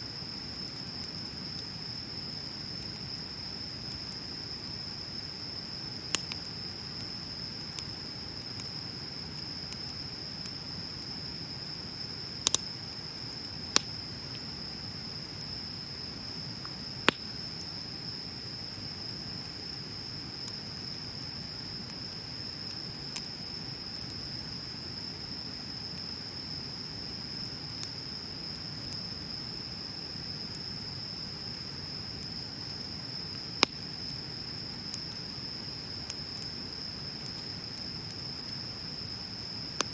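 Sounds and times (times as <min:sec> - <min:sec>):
bonfire burning rustle: 0:00.0 - 0:39.9
burning wood popping: 0:16.6 - 0:17.7.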